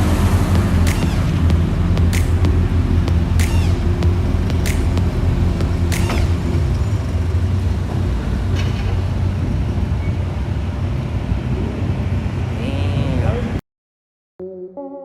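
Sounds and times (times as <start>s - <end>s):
car engine running: 0.0s - 9.7s.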